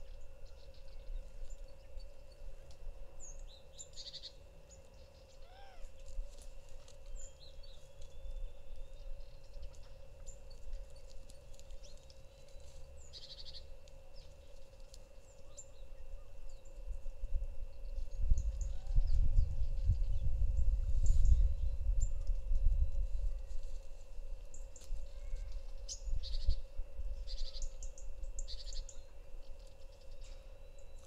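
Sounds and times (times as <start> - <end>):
faint hum: 0.0 - 31.0
small birds chirping: 7.0 - 16.8, 24.5 - 31.0.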